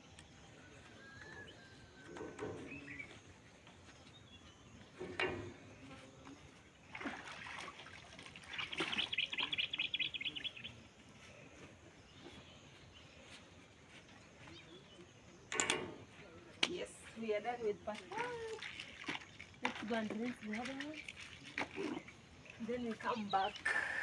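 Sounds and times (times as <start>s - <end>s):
birds chirping: 0.0s - 24.0s
water splashing from hand washing: 5.0s - 10.5s, 16.5s - 24.0s
fast chirping bird trill: 8.4s - 10.8s.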